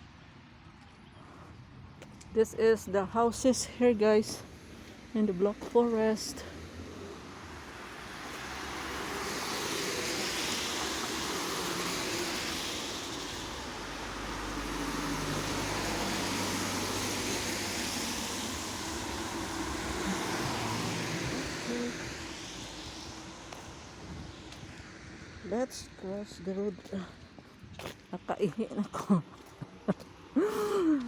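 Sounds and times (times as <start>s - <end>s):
tyres hissing on wet road: 4.2s - 28.2s, 30.0s - 31.0s
low engine hum: 4.4s - 28.3s.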